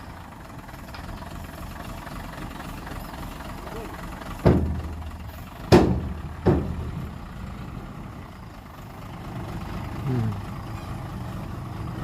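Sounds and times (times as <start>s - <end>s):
diesel engine running: 0.0s - 12.0s
loud ringing bangs: 4.4s - 7.2s.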